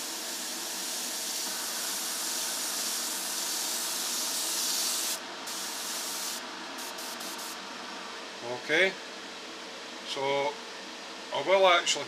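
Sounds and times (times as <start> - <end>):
airbrush hissing: 0.0 - 7.6
extractor fan running: 0.0 - 12.0.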